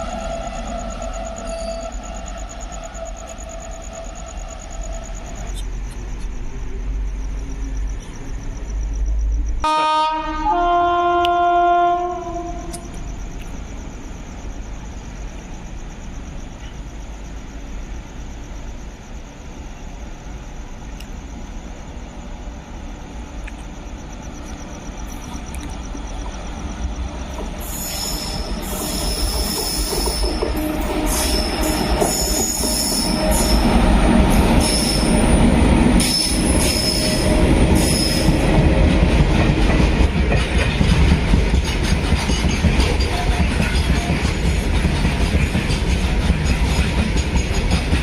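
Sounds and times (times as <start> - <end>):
wheels squealing on rails: 0.0 - 20.0, 23.0 - 48.0
train rumbling past: 0.0 - 48.0
locomotive horn blast: 9.6 - 12.9.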